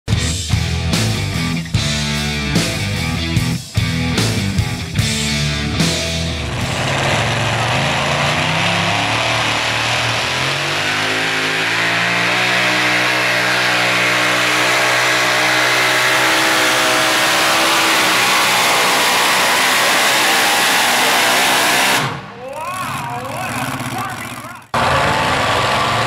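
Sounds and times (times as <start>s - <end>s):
pulling truck engine at full throttle: 3.9s - 26.0s.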